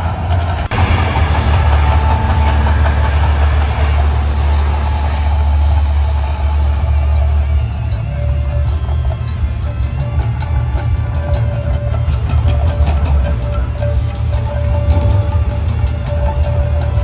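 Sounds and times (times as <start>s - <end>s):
deep rumble with rushing: 0.0s - 17.0s
show music: 0.0s - 17.0s.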